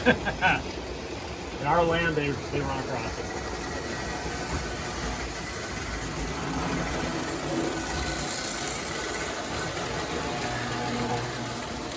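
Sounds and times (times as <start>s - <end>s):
model trains humming and rumbling: 0.0s - 11.9s.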